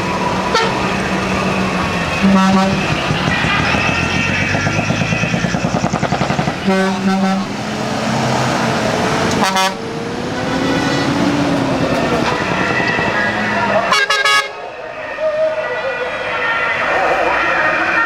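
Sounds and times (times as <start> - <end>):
truck engines running: 0.0 - 18.0
truck horn blasts: 0.4 - 5.6, 6.3 - 14.8.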